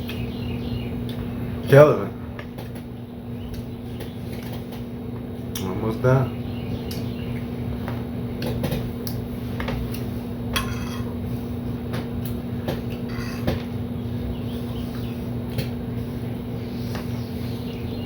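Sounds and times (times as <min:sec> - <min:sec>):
steady low hum: 0:00.0 - 0:18.0
cutlery clinking on a plate: 0:10.5 - 0:11.1.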